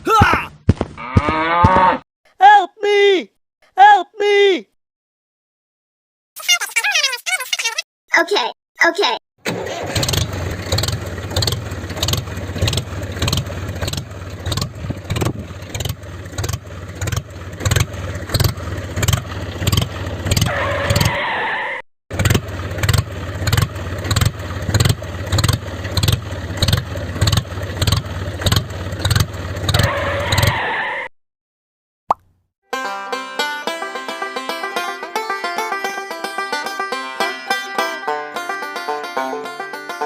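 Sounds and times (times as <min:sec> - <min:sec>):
tractor engine chugging: 0:09.5 - 0:20.9, 0:22.1 - 0:30.2.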